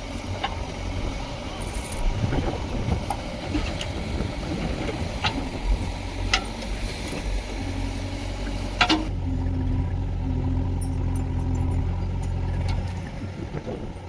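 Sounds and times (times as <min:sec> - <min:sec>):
heavy diesel engine running: 0:00.0 - 0:14.0
sharp metallic knocks: 0:08.7 - 0:09.1.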